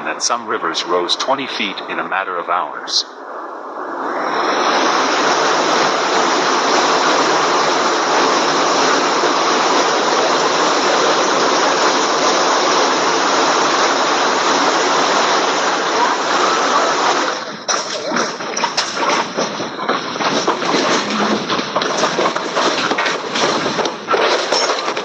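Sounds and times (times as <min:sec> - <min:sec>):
person narrating: 0:00.0 - 0:03.2
floodwater rushing: 0:00.0 - 0:25.0.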